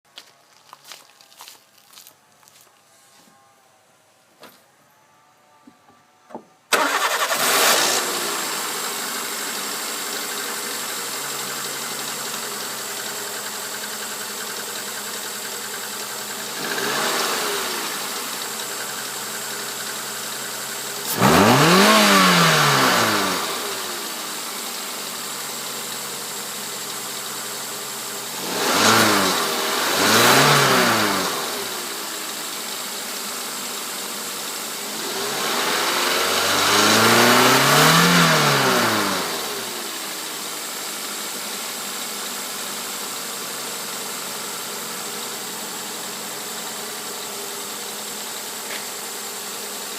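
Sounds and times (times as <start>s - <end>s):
car engine revving: 6.7s - 32.8s, 34.7s - 41.7s
car engine starting and idling: 6.7s - 49.9s.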